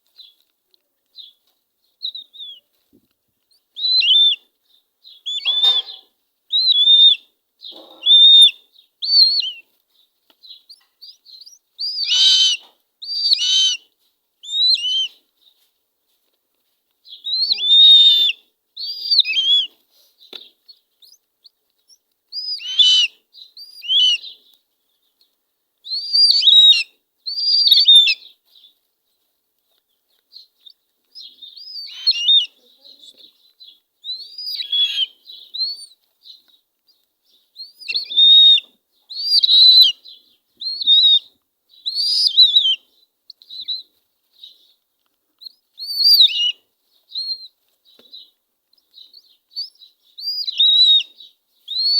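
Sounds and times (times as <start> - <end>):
eagle chicks begging calls: 3.8 - 4.4, 5.1 - 9.6, 10.6 - 15.2, 17.2 - 20.4, 21.9 - 24.4, 25.8 - 28.3, 30.6 - 33.4, 34.0 - 36.5, 37.6 - 40.0, 40.6 - 43.9, 45.4 - 51.9.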